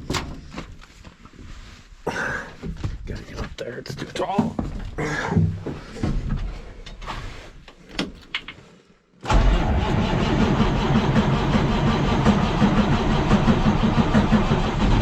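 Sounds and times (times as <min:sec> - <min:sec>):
diesel engine starting and running: 0:09.3 - 0:15.0.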